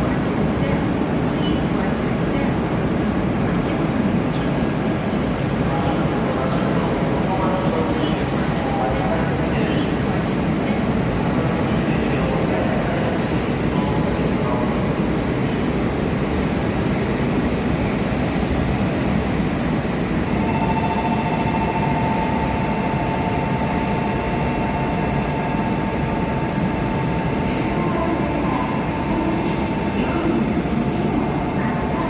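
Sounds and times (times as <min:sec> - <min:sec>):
train rail noise rumble: 0:00.0 - 0:32.0.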